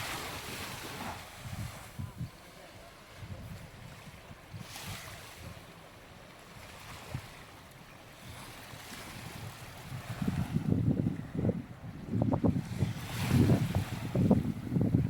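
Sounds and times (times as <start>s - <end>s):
wind buffeting microphone: 0.0s - 2.5s, 3.1s - 5.7s, 8.2s - 15.0s
small waves washing onto sand: 0.0s - 15.0s.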